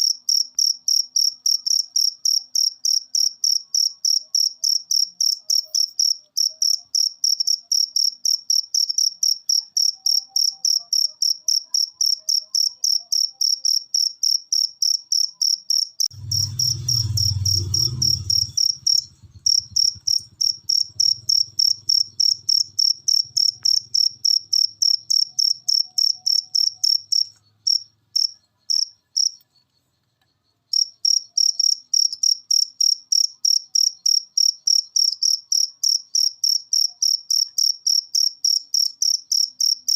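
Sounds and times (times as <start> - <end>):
cricket chirping: 0.0 - 39.9
low rumble: 16.1 - 23.9.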